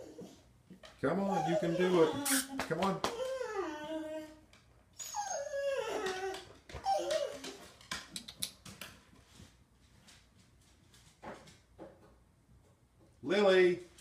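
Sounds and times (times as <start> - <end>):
dog whining and whimpering: 0.0 - 0.5, 1.2 - 7.7.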